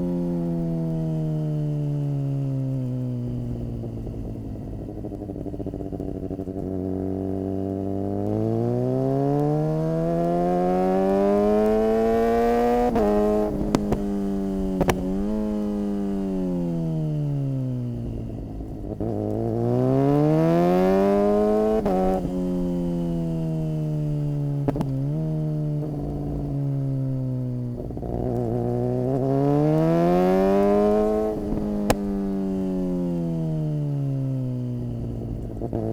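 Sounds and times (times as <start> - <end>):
motorcycle engine revving: 0.0 - 35.9
sharp cracks on upshift: 11.0 - 17.4, 29.8 - 33.2.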